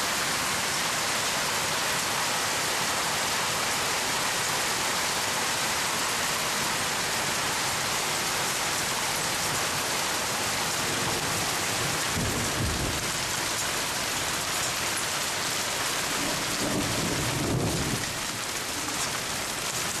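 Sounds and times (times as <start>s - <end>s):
rain falling steadily: 0.0s - 20.0s
low rumble of thunder: 11.0s - 13.2s, 16.2s - 18.5s.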